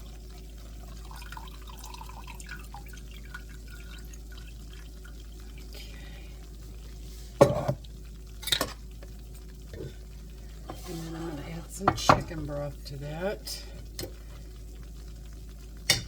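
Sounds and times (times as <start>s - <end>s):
liquid dripping into cup: 0.8s - 5.8s.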